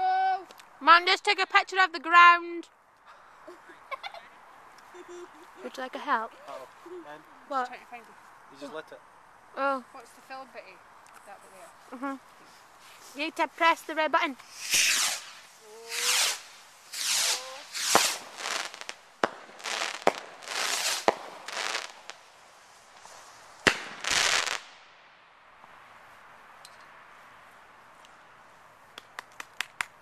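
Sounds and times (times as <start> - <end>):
small crackling firework pops: 11.0 - 11.3, 14.3 - 22.3, 22.9 - 25.0, 26.6 - 27.0, 28.9 - 30.0
fireworks bursts and bangs: 14.4 - 22.2, 22.9 - 24.8.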